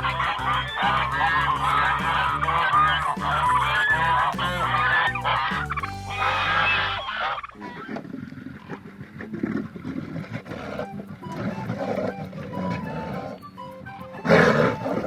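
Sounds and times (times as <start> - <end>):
farm fowl calling: 0.0 - 8.2.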